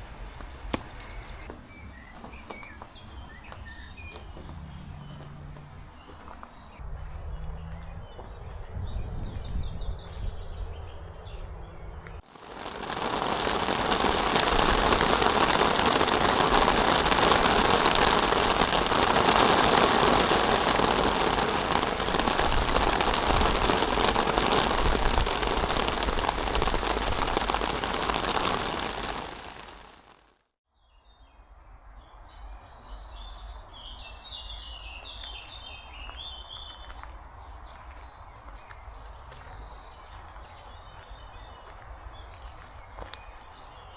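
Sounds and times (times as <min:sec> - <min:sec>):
small birds chirping: 0:07.4 - 0:30.2
heavy rain pouring: 0:12.2 - 0:30.3.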